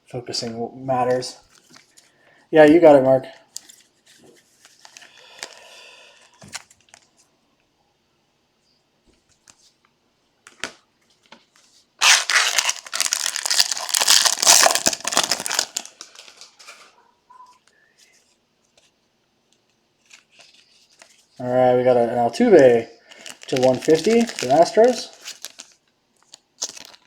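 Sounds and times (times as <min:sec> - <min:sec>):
wrapper crinkling and tearing: 0:12.0 - 0:16.9, 0:23.1 - 0:27.0.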